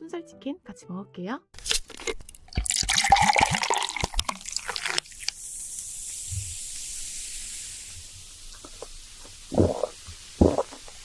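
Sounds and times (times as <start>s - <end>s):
steady high hiss: 3.6s - 11.0s.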